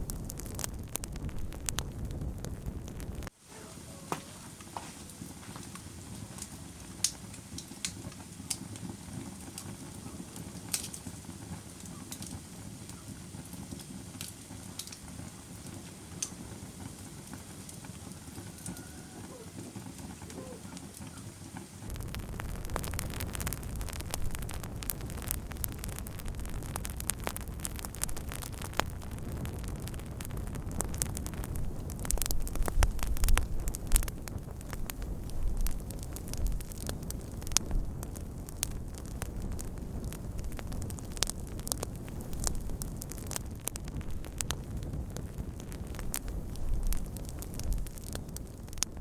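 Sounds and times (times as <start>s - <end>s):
low rumble: 0.0s - 3.3s, 21.9s - 49.0s
wood fire crackling: 0.0s - 49.0s.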